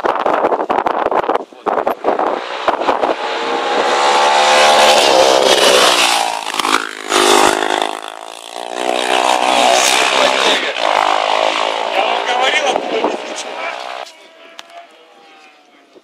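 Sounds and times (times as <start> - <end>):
racing motorcycles passing: 1.8 - 15.8.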